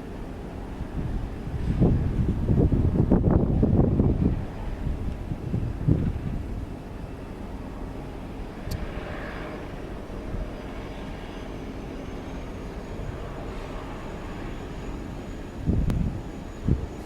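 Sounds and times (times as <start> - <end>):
turboprop engines running: 0.0 - 17.0
faint high whine: 4.4 - 17.0.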